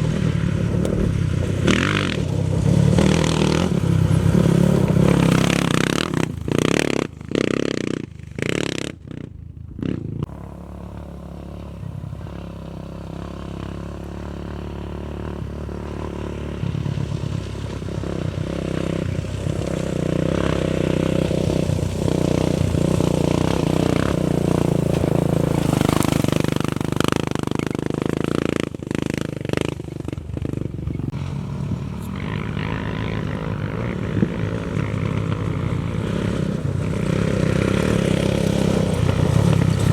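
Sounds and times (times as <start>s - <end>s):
race vehicle engine revving: 0.0s - 8.9s, 10.2s - 39.9s.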